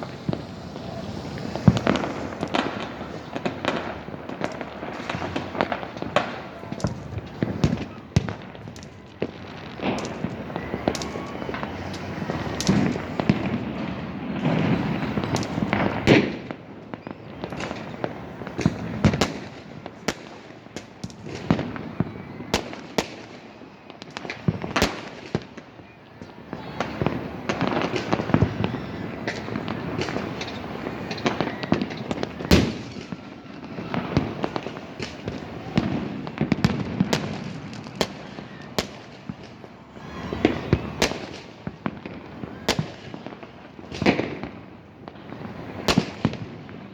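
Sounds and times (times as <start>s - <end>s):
sharp firework bangs: 0.0s - 16.6s, 26.6s - 46.8s
fireworks crackling and rumbling: 0.0s - 46.9s.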